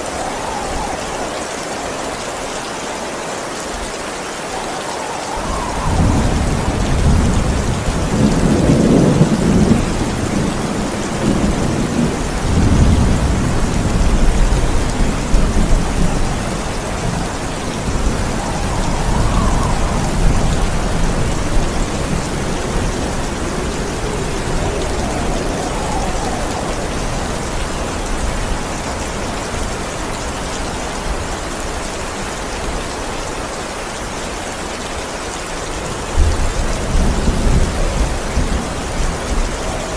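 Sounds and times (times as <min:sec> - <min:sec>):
heavy rain: 0:00.0 - 0:39.9
thunder rumbling: 0:04.5 - 0:31.2.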